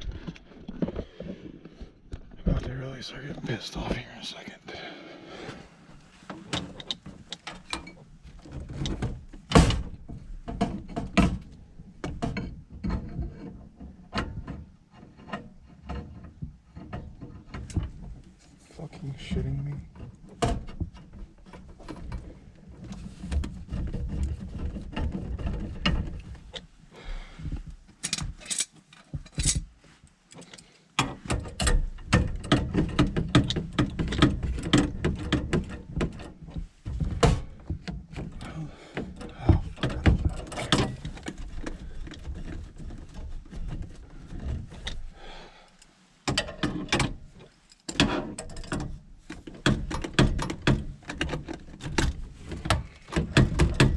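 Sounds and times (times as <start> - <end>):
hand tools clicking and knocking: 27.4 - 29.7, 30.3 - 45.1, 45.7 - 53.9.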